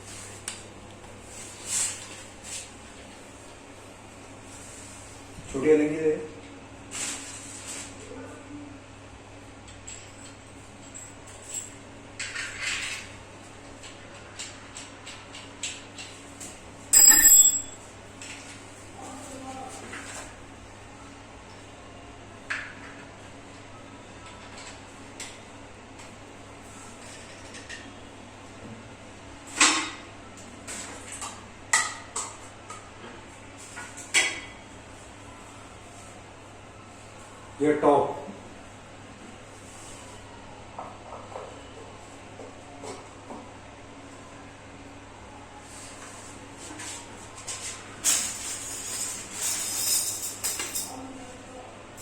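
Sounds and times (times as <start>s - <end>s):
metal tools clinking: 17.0s - 17.8s, 48.1s - 51.0s.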